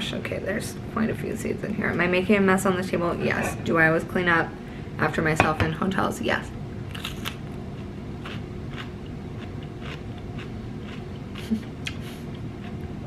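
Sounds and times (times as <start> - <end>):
low room hum: 0.0 - 13.0
chewing crisp pepper crunches: 6.9 - 12.9.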